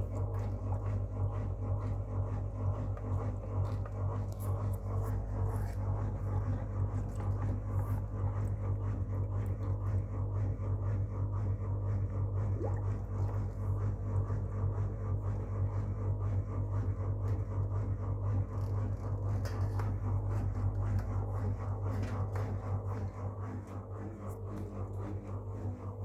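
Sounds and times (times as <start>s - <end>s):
washing machine humming: 0.0s - 26.0s.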